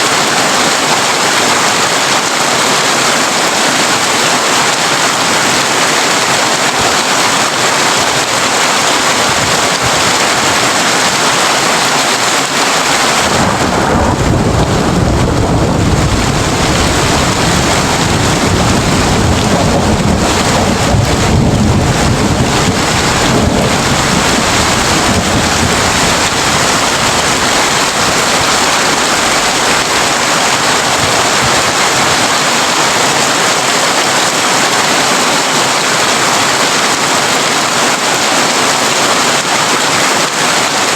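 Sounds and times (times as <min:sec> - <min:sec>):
heavy rain on a tin roof: 0:00.0 - 0:40.9
thunder rumbling: 0:12.1 - 0:32.5.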